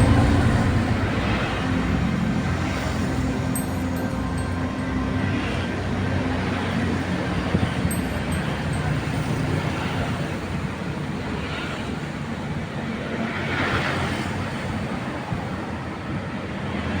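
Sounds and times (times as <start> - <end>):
diesel engine droning: 0.0 - 9.3
wind noise on microphone: 0.0 - 10.9.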